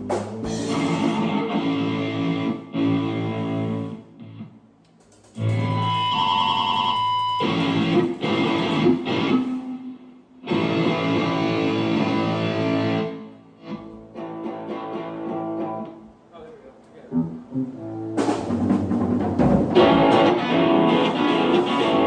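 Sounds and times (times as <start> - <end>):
distorted electric guitar chords: 0.0 - 4.6, 5.4 - 16.0, 19.7 - 22.0.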